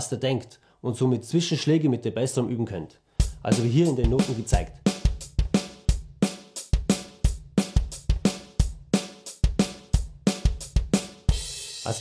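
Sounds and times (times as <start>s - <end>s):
snare drum: 3.3s - 12.0s.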